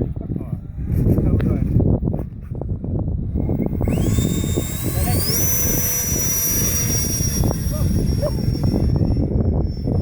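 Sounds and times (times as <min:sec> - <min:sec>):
wind buffeting microphone: 0:00.0 - 0:10.0
aircraft motor high whine: 0:00.6 - 0:10.0.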